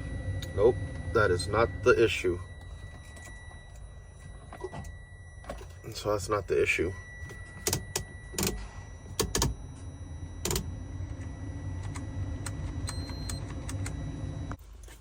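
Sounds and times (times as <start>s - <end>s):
steady low hum: 0.0s - 15.0s
sharp clicks and knocks: 7.3s - 9.6s.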